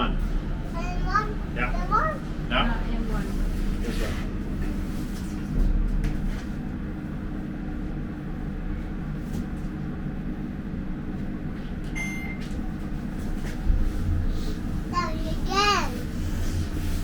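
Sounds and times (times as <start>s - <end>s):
elevator hum: 0.0s - 17.0s
short high beep: 12.0s - 12.4s.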